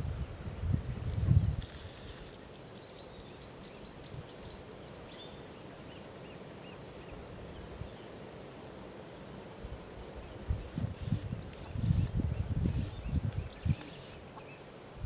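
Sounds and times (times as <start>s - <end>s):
outdoor background noise: 0.0s - 15.0s
bird calls with high ticking notes: 12.7s - 14.6s.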